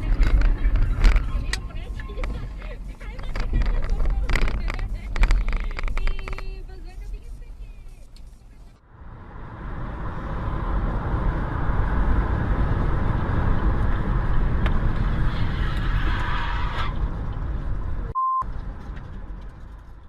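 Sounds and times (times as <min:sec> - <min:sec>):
car engine and road noise: 0:00.0 - 0:20.0
short steady beep: 0:18.2 - 0:18.4.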